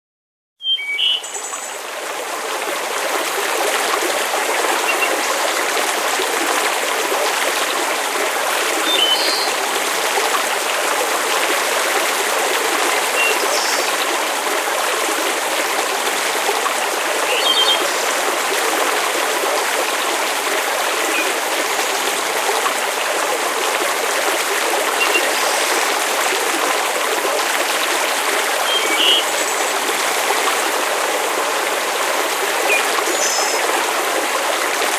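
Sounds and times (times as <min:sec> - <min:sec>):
water rushing: 0:01.4 - 0:34.9.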